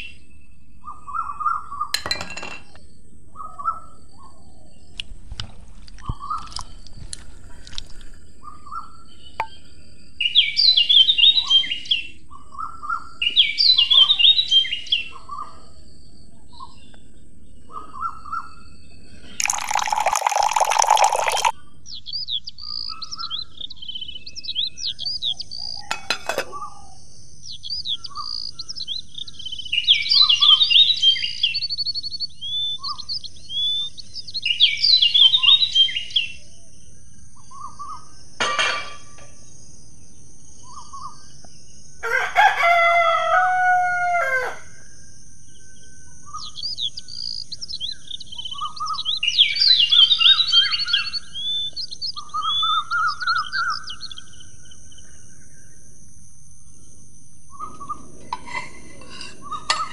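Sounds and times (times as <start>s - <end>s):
birds chirping: 5.9s - 38.4s, 45.5s - 55.9s
water pouring into metal pot: 19.4s - 21.5s.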